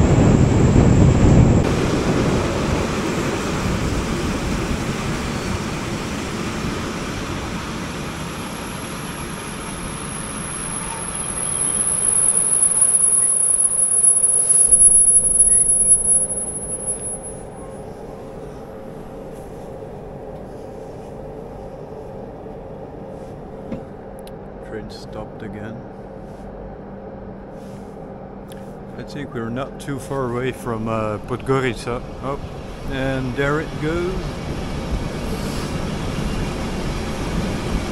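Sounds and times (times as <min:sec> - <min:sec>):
train rumbling: 0:00.0 - 0:37.9
low steady hum: 0:07.4 - 0:37.9
high-pitched brake squeal: 0:09.1 - 0:17.8.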